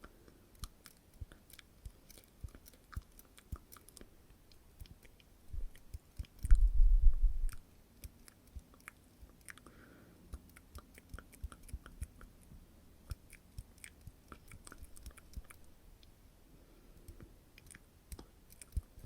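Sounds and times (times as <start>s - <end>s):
wet mouth clicks and smacks: 0.6s - 6.7s, 7.4s - 9.7s, 10.3s - 12.4s, 13.0s - 15.7s, 17.0s - 19.0s.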